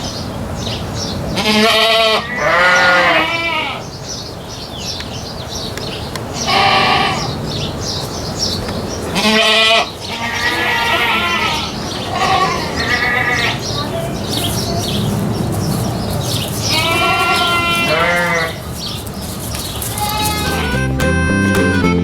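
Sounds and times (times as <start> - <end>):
goats bleating: 1.4 - 3.9, 6.3 - 7.5, 9.0 - 21.0.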